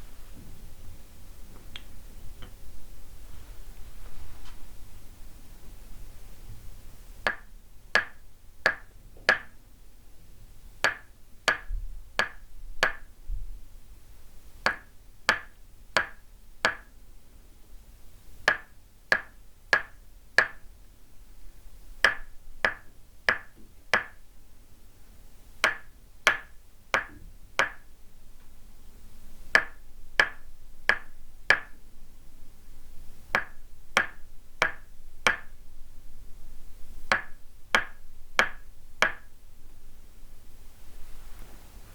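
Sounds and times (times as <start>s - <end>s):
wooden mallet tapping wooden peg: 7.2s - 9.6s, 10.8s - 13.1s, 14.6s - 17.0s, 18.4s - 20.7s, 22.0s - 24.2s, 25.6s - 27.9s, 29.5s - 31.8s, 33.3s - 35.6s, 37.1s - 39.4s.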